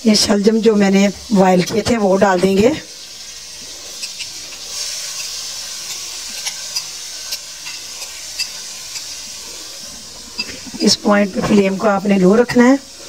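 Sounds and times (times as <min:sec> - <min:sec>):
meat sizzling in a pan: 0:00.0 - 0:13.0
spoon scraping glass bowl: 0:03.8 - 0:09.2, 0:10.3 - 0:10.8.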